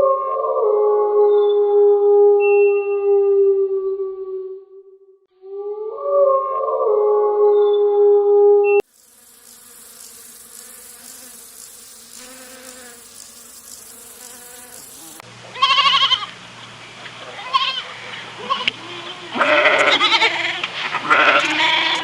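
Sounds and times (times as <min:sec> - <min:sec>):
faint insect buzz: 0:08.8 - 0:16.4
goat bleating: 0:15.5 - 0:16.3, 0:17.4 - 0:22.0.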